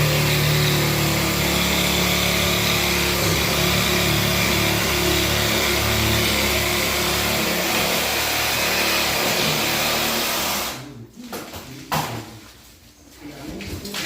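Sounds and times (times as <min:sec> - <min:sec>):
power tool motor running: 0:00.0 - 0:10.8.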